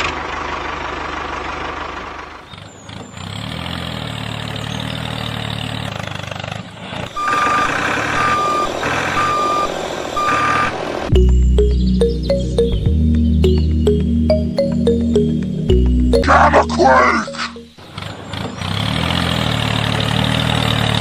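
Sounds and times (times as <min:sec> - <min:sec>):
reversing alarm beeping: 0:07.2 - 0:17.8.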